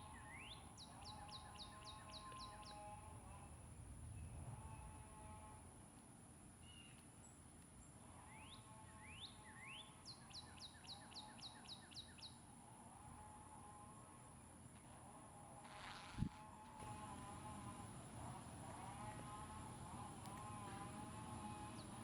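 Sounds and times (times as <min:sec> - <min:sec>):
songbird singing: 0:00.0 - 0:05.0, 0:06.6 - 0:12.6, 0:19.2 - 0:22.0
steady high-pitched hum: 0:16.0 - 0:22.0.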